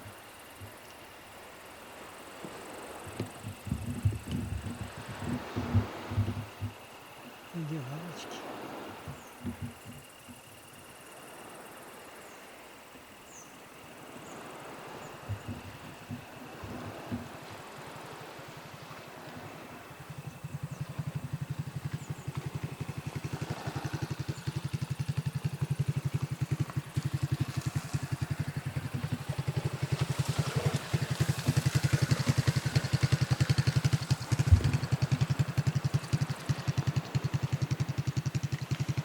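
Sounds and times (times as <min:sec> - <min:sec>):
low thump: 0:03.2 - 0:06.8, 0:34.4 - 0:34.8
engine running rapid beat: 0:20.1 - 0:39.0.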